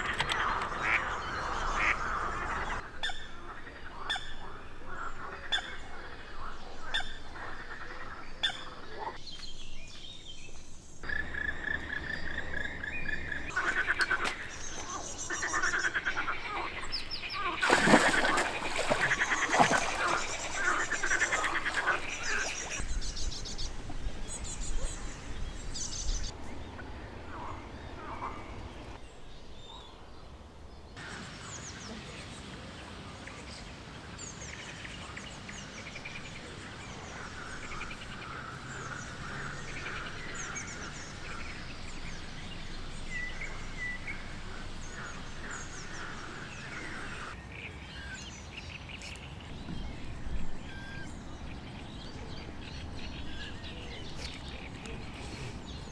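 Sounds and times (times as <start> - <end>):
birds chirping and singing: 8.5 - 29.0.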